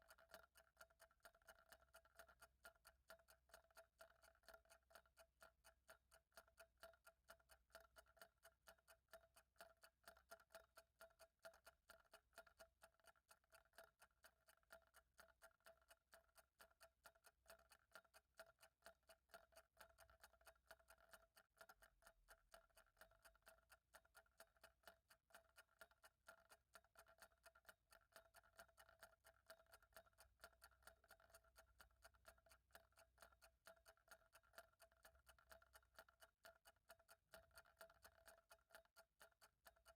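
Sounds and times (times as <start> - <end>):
clock ticking: 18.0 - 39.9.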